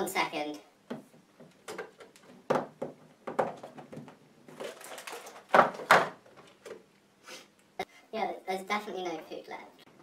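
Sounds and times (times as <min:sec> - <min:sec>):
rustling and knocking: 0:00.9 - 0:06.9.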